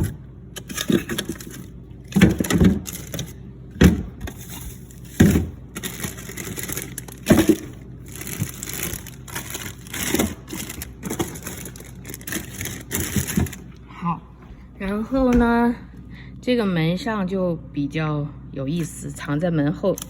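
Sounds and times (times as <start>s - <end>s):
frozen food packages crinkling: 0.0s - 3.4s, 4.3s - 13.8s
packages knocking: 0.7s - 4.4s, 5.0s - 13.6s.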